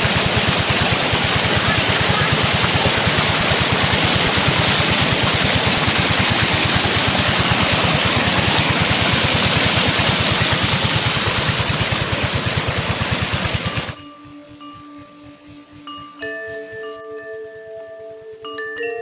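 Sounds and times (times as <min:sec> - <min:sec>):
water pump rushing hiss: 0:00.0 - 0:14.0
diesel engine chugging: 0:00.0 - 0:18.4.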